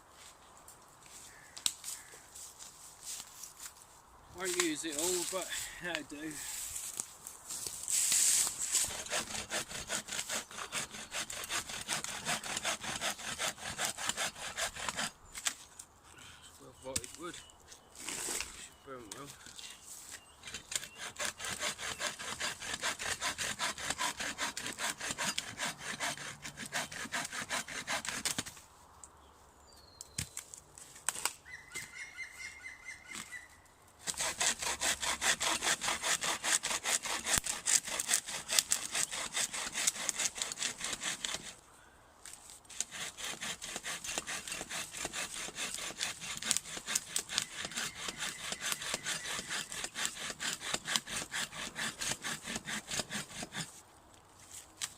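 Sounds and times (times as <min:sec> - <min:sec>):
hand saw cutting wood: 0:04.4 - 0:05.6, 0:07.9 - 0:15.6, 0:20.4 - 0:28.5, 0:34.0 - 0:41.6, 0:42.7 - 0:53.8.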